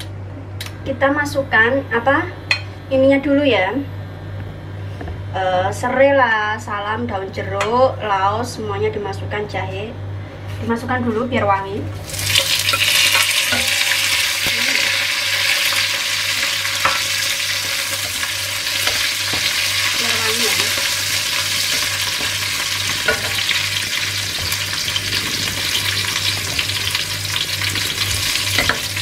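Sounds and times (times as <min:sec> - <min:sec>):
food sizzling in hot oil: 0:12.0 - 0:29.0.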